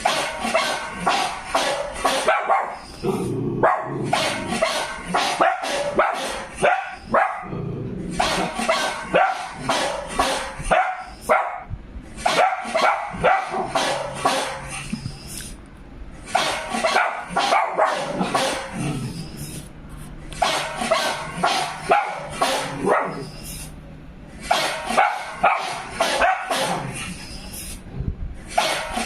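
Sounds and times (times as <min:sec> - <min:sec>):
dog barking: 0:00.5 - 0:02.8, 0:03.6 - 0:07.5, 0:08.7 - 0:14.6, 0:16.8 - 0:18.7, 0:20.4 - 0:23.3, 0:24.5 - 0:26.9.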